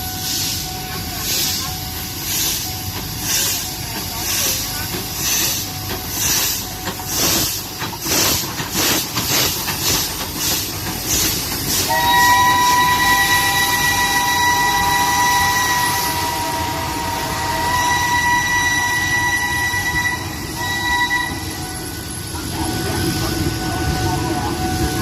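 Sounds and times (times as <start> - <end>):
steam locomotive chugging: 0.0 - 25.0
steam whistle chord: 11.9 - 22.0.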